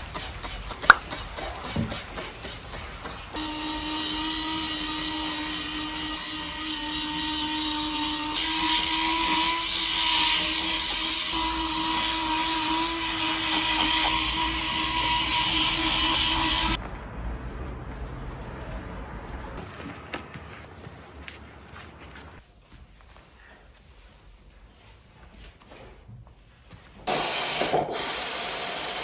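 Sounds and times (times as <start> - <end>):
hissing scrubbing: 0.0 - 19.7
small electric motor humming: 3.4 - 16.8.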